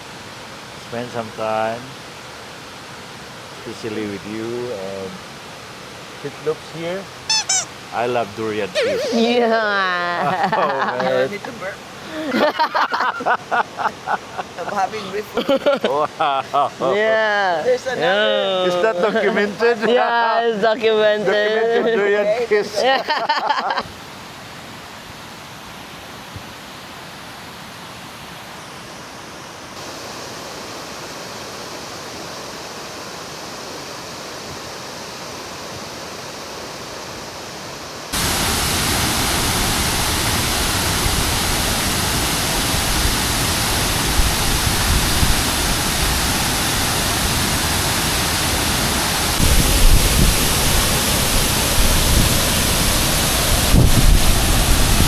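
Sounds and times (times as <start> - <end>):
waterfall roaring: 0.0 - 55.0.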